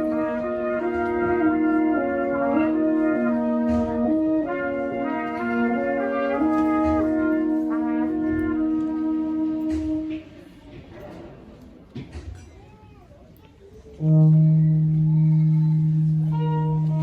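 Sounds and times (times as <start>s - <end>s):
brass quartet playing: 0.0s - 10.5s, 14.0s - 17.0s.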